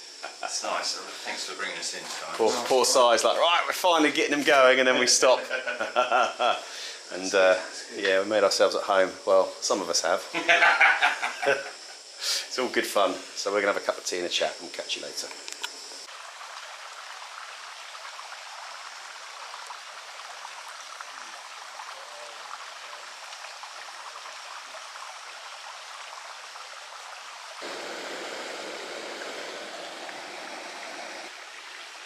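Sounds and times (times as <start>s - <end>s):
stream rushing water: 19.4s - 32.0s.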